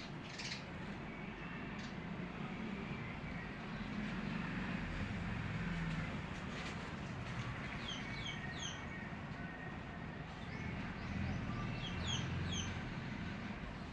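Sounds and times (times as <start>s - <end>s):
bird chirping: 10.4s - 12.8s.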